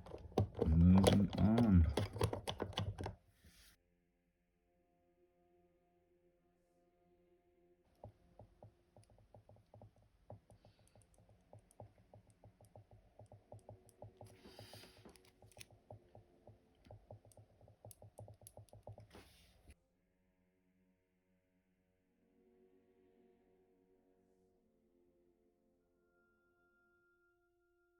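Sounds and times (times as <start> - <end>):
small parts clicking and tapping: 0.0 - 3.2, 7.9 - 19.3.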